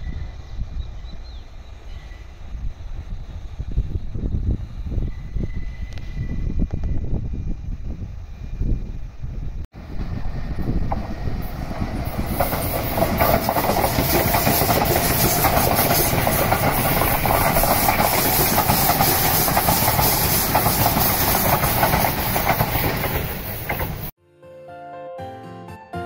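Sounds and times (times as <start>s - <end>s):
train wheels hissing on rails: 1.5s - 24.1s
wheels clicking over rail joints: 11.7s - 24.1s.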